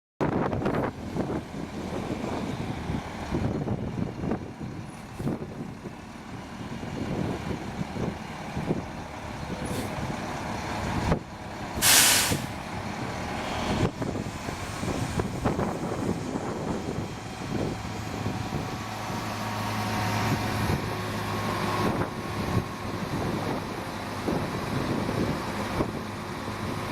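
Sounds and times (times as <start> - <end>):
diesel truck engine running: 0.2 - 26.9
air brakes hissing: 9.6 - 10.0, 11.8 - 12.6.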